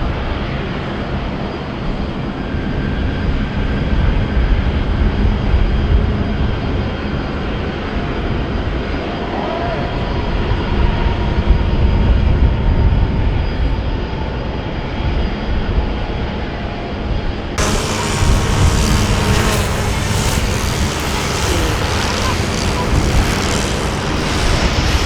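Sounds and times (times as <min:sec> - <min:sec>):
jet engines rumbling: 0:17.6 - 0:25.0.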